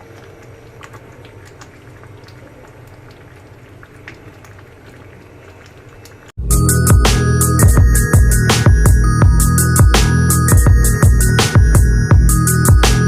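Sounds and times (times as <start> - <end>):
pot of food bubbling: 0.0 - 6.4
loud electronic music: 6.4 - 13.0.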